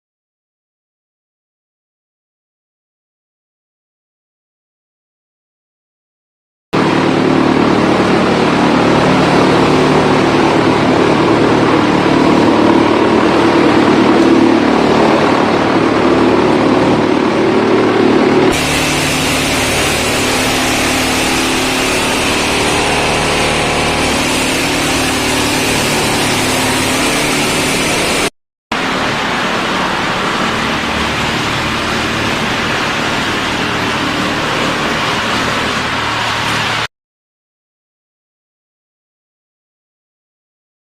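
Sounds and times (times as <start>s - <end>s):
wood chipper running: 6.8s - 36.9s.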